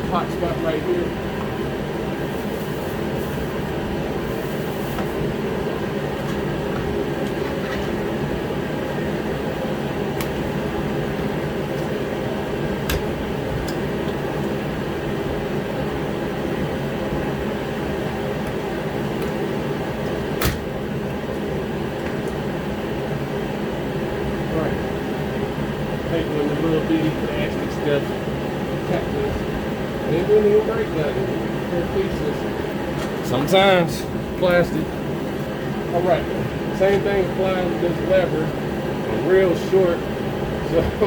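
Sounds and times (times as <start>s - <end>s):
heater humming: 0.0s - 41.0s.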